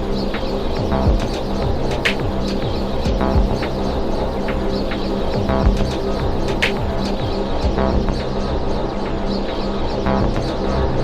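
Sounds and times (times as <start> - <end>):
chirping high synth sounds: 0.0 - 11.0
low synth drone: 0.0 - 11.0
low falling synth thuds: 0.8 - 8.4.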